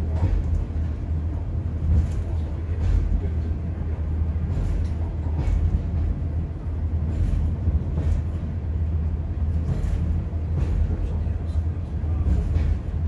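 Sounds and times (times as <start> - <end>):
diesel railbus engine rumble: 0.0 - 13.0
wheels knocking on rails: 12.1 - 13.0.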